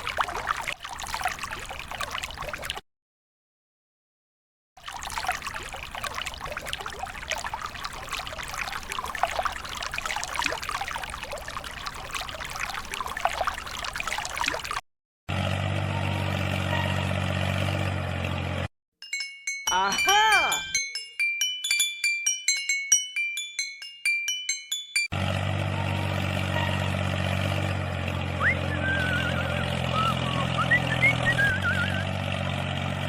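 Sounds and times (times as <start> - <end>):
water splashing and trickling: 0.0 - 2.8, 4.8 - 21.1, 24.7 - 33.0
low motor hum: 15.3 - 18.7, 25.2 - 33.0.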